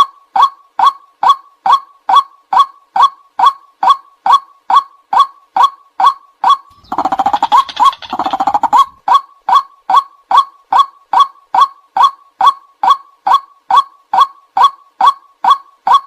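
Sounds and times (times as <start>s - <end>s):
waterhen calling kwak: 6.5s - 10.4s
bird fast chattering: 6.7s - 9.0s.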